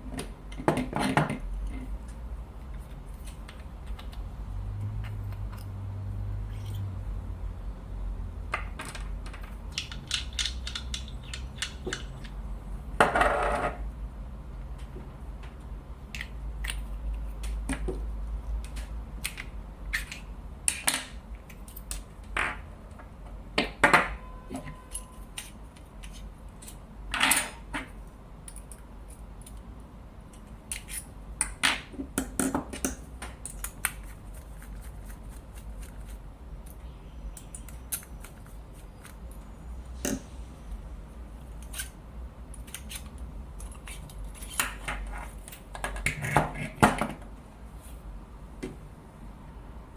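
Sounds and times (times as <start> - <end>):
small metal parts clicking: 8.5 - 12.4, 41.5 - 46.3.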